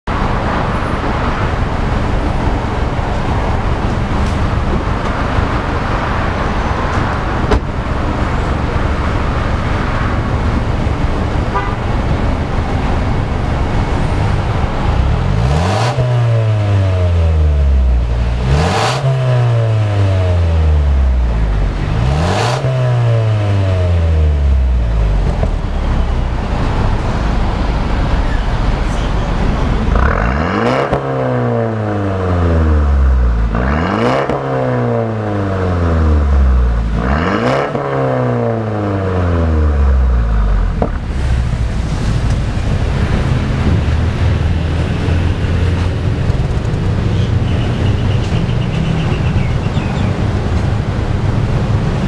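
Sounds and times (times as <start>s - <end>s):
car engine idling and revving: 0.1s - 52.0s
exhaust crack: 39.4s - 52.0s.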